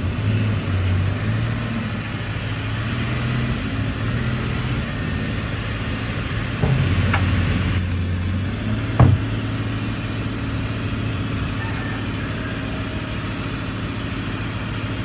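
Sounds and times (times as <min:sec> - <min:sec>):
short knock: 0:06.6 - 0:08.0, 0:09.0 - 0:09.4.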